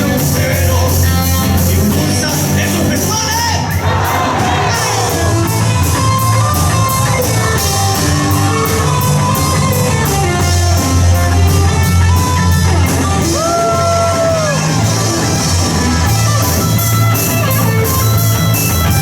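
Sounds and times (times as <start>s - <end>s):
bass guitar: 0.0s - 19.0s
drum kit: 0.0s - 19.0s
electric guitar melody: 0.0s - 19.0s.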